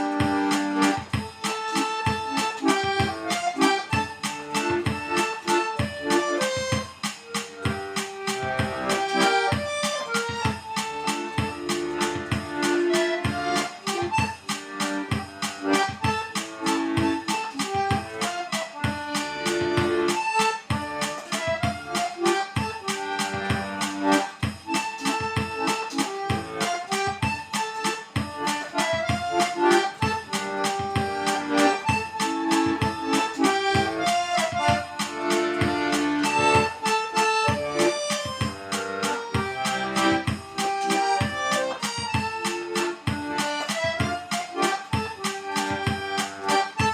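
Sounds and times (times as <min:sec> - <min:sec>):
accordion melody: 0:00.0 - 0:46.9
rhythmic accompaniment: 0:00.0 - 0:46.9.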